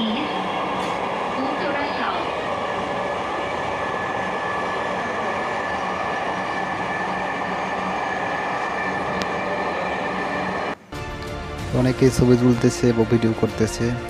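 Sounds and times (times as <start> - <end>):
train rolling rumble: 0.0 - 10.8
steady whine: 0.0 - 13.6.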